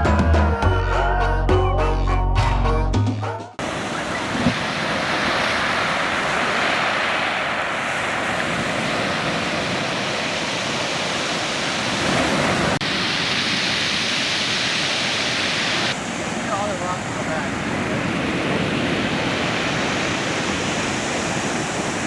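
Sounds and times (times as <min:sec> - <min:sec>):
ocean surf washing on beach: 0:03.6 - 0:22.0.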